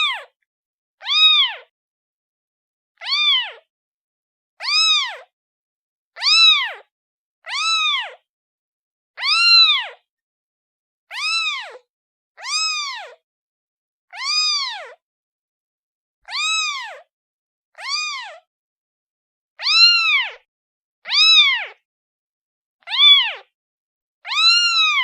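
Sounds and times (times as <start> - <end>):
kitten meowing: 0.0 - 0.3, 1.0 - 1.7, 3.0 - 3.6, 4.6 - 5.3, 6.2 - 6.9, 7.5 - 8.2, 9.2 - 10.0, 11.1 - 11.8, 12.4 - 13.2, 14.1 - 15.0, 16.3 - 17.1, 17.8 - 18.5, 19.6 - 20.5, 21.1 - 21.8, 22.9 - 23.5, 24.3 - 25.0.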